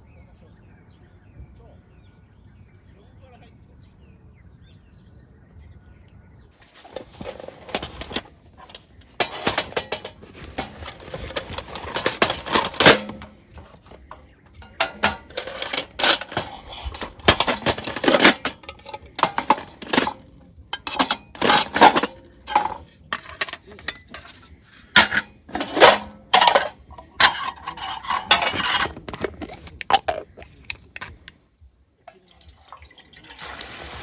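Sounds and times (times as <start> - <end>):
metal cookware clinking and scraping: 6.6 - 31.3.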